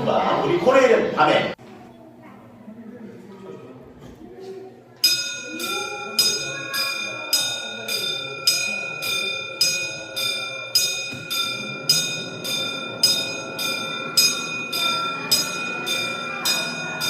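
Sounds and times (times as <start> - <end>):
level-crossing warning bell ringing: 5.0 - 17.0.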